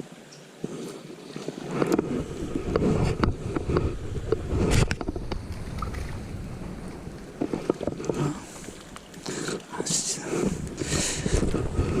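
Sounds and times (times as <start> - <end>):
wind buffeting microphone: 1.8 - 9.2, 10.4 - 12.0.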